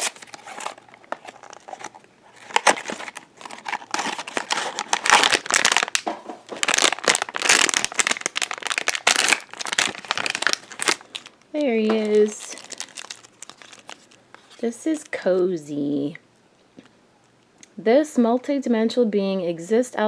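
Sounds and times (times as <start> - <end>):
packaging crinkling and tearing: 0.0 - 15.1.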